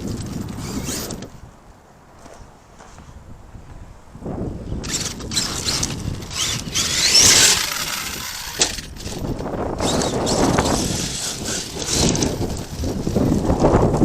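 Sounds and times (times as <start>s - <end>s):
rc truck motor whining: 0.0s - 1.4s, 4.8s - 14.0s.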